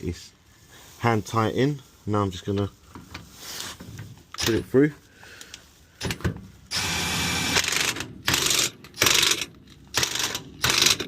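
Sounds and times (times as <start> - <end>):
impact wrench rattling: 6.0 - 11.0.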